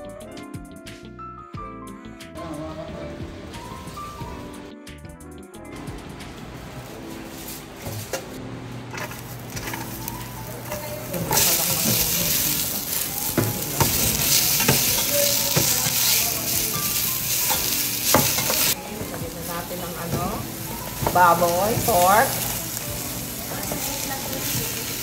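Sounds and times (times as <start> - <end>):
food sizzling in hot oil: 6.9 - 25.0.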